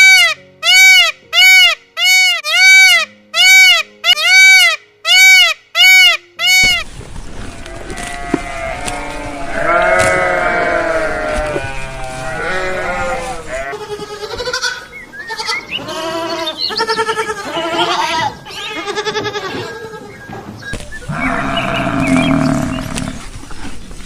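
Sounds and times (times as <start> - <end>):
livestock bleating: 7.5 - 20.2, 21.1 - 23.2.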